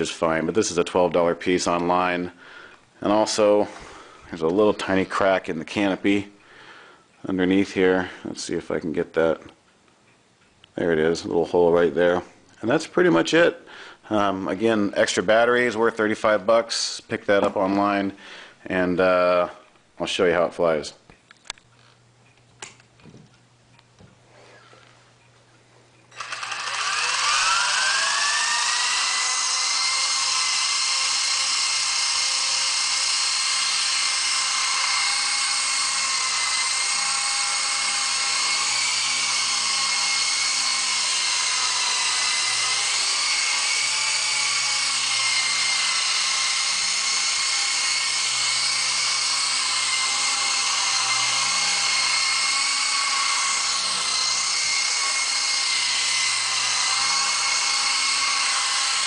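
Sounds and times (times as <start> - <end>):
toy helicopter motor whine: 26.1 - 59.0.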